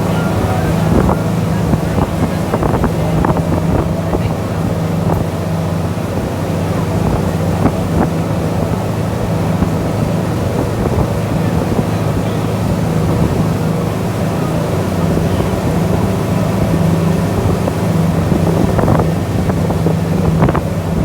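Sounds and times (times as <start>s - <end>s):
boat engine running: 0.0s - 21.0s
wind buffeting microphone: 0.0s - 21.0s.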